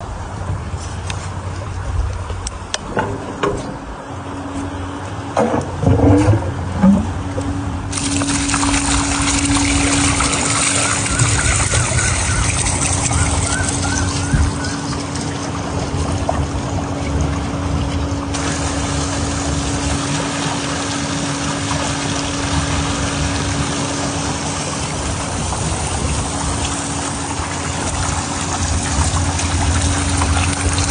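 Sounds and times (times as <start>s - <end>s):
low hum: 0.0s - 30.9s
water running: 7.9s - 30.9s.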